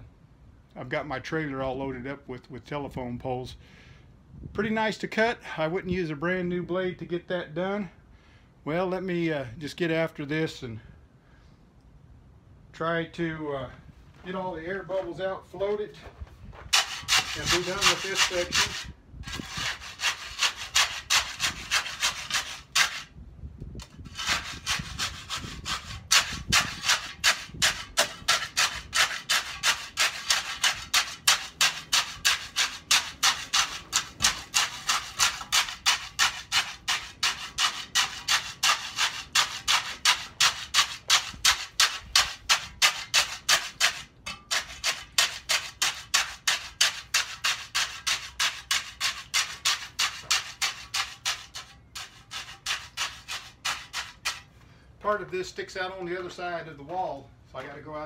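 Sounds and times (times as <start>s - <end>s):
float scraping concrete: 14.2s - 23.2s, 23.8s - 57.0s.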